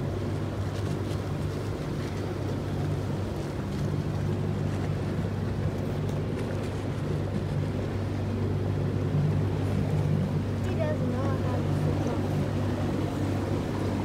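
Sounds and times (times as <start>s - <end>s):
boat motor running: 0.0s - 14.0s.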